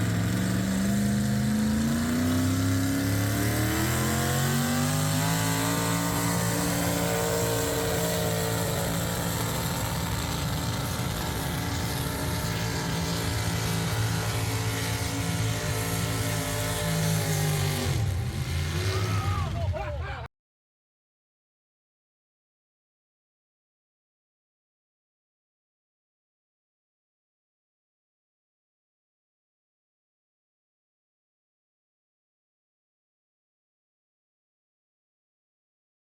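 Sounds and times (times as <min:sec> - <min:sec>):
vehicle engine at high revs: 0:00.0 - 0:19.8.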